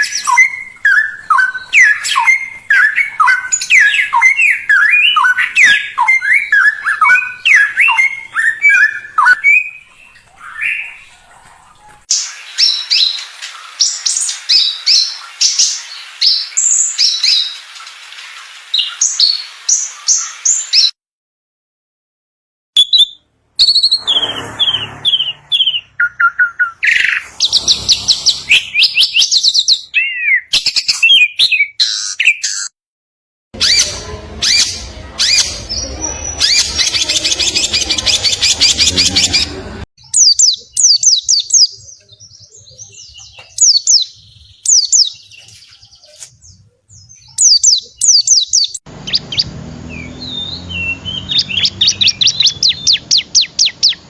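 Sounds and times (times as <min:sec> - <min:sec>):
songbirds chattering song: 0:33.6 - 0:54.0.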